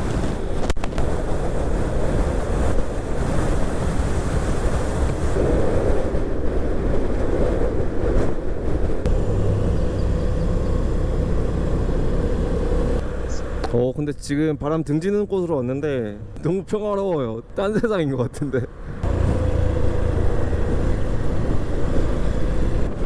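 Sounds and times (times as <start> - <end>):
wind buffeting microphone: 0.0 - 13.7, 18.7 - 23.0
motorcycle running: 9.1 - 13.8, 19.0 - 23.0.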